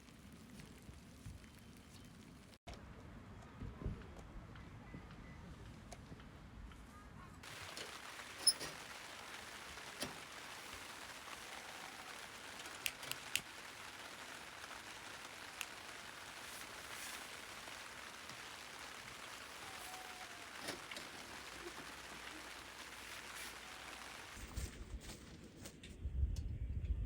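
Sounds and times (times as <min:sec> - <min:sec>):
rain falling steadily: 0:00.0 - 0:02.6, 0:07.4 - 0:24.7.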